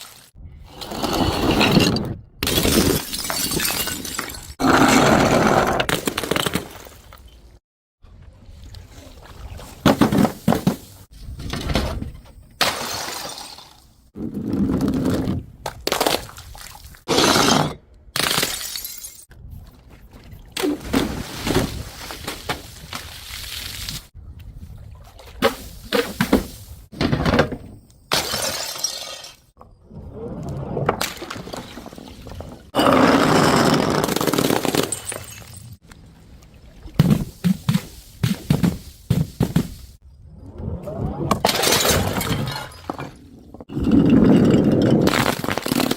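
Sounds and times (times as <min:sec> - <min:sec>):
glass bottles smashing: 0:02.5 - 0:04.6, 0:18.2 - 0:19.3, 0:28.1 - 0:29.4, 0:34.0 - 0:35.8, 0:41.5 - 0:43.2.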